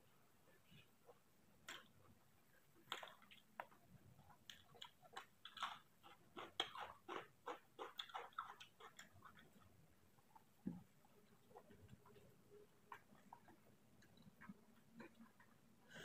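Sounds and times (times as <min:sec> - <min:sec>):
person chewing food: 0:01.0 - 0:16.0.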